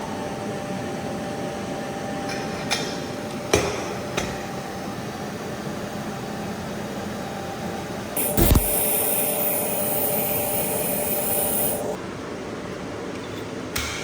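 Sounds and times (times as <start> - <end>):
high hiss: 8.2 - 12.0
welding machine humming: 8.2 - 12.0.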